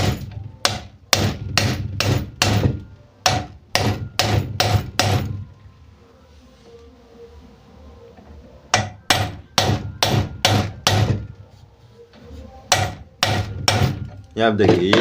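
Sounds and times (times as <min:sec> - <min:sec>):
hammer striking metal bolt: 0:00.0 - 0:05.4, 0:08.7 - 0:11.4, 0:12.7 - 0:15.0.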